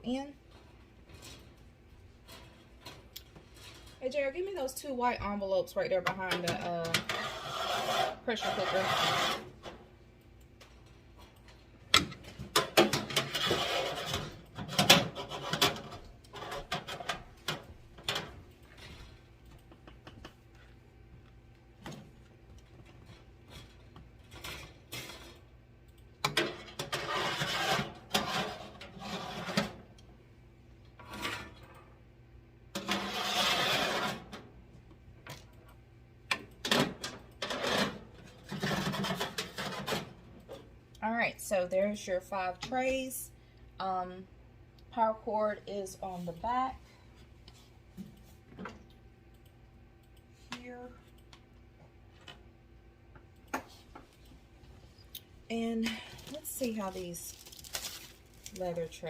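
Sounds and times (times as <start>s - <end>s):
faint steady hum: 0.0s - 59.0s
rustling: 56.8s - 58.6s.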